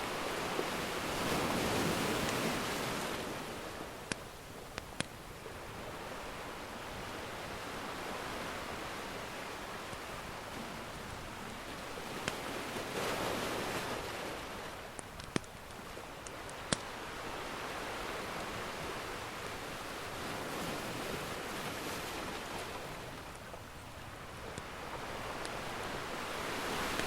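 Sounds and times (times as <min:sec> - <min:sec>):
ocean surf washing: 0:00.0 - 0:27.0
wood fire popping and crackling: 0:04.0 - 0:05.7, 0:09.2 - 0:17.4, 0:23.0 - 0:27.0.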